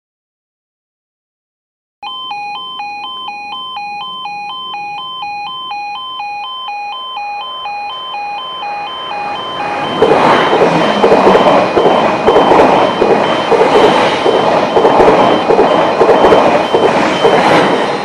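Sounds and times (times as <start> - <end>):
two-tone crossing alarm: 2.0 - 18.0
train passing: 7.0 - 18.0.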